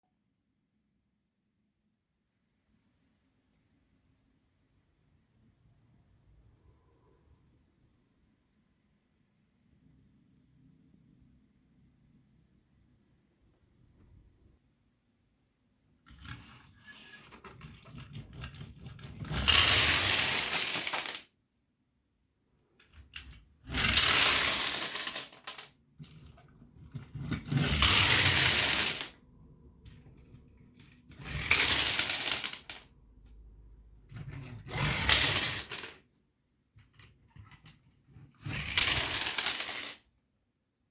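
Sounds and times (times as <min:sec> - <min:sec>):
dominoes toppling and clattering: 0:16.1 - 0:21.3, 0:23.0 - 0:29.2, 0:30.9 - 0:32.9, 0:34.1 - 0:36.0, 0:38.4 - 0:40.0.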